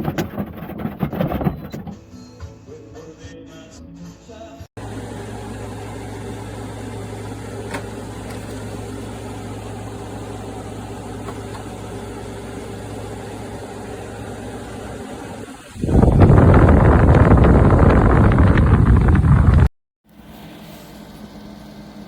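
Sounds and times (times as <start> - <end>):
air conditioner humming: 4.8 - 18.9.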